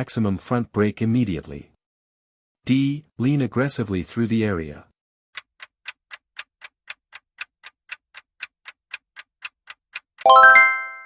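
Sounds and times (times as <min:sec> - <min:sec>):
clock ticking: 0:05.4 - 0:10.8
bright chime: 0:10.3 - 0:11.0.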